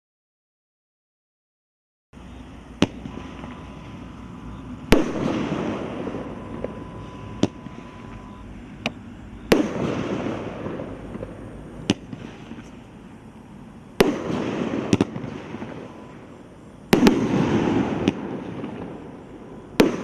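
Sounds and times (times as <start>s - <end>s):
firework crackling: 2.2s - 20.0s
firework bangs: 2.7s - 20.0s.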